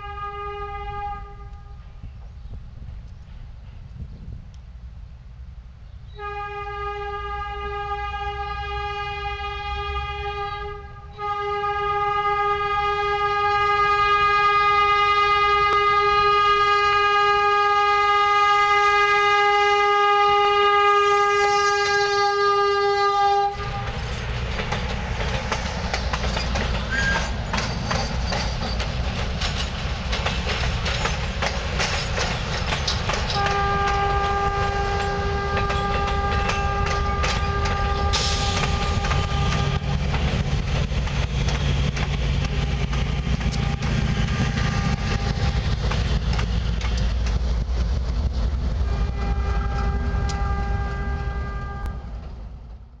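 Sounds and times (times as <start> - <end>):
locomotive horn blast: 0.0 - 2.0, 6.1 - 24.0, 33.3 - 40.1, 43.5 - 45.8, 48.8 - 52.2
train wheels rumbling over rails: 0.0 - 53.0.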